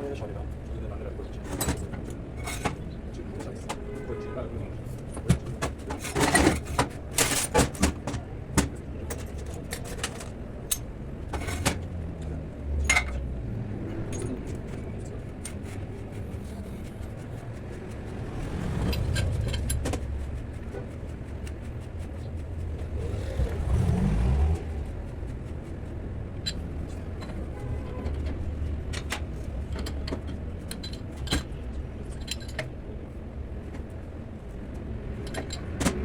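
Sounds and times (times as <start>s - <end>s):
low steady rumble: 10.5s - 28.9s
hand tools clinking on metal: 12.8s - 13.2s.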